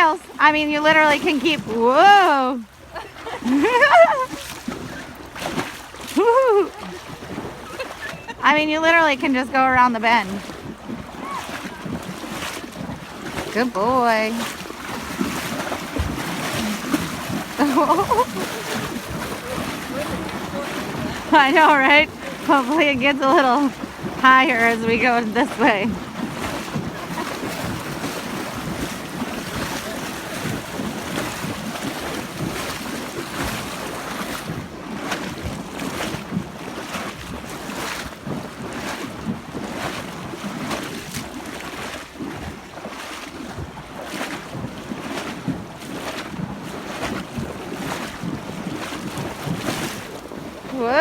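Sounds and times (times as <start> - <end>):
horses splashing through water: 0.0 - 51.0
wind buffeting microphone: 3.2 - 40.7.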